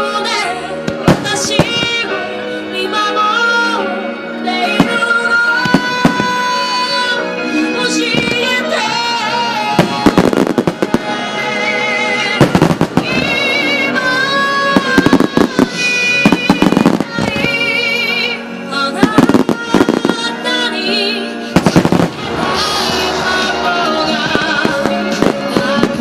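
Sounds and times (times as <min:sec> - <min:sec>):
fireworks bangs and crackles: 0:00.8 - 0:02.1, 0:04.7 - 0:06.5, 0:09.6 - 0:11.2, 0:12.3 - 0:13.7, 0:14.6 - 0:17.8, 0:19.0 - 0:20.4, 0:21.5 - 0:26.0.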